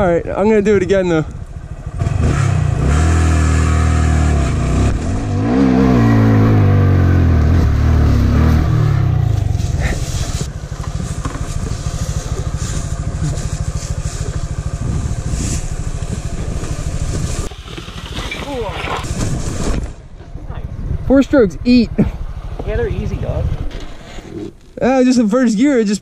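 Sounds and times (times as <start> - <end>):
motorcycle engine revving: 0.5 - 24.7.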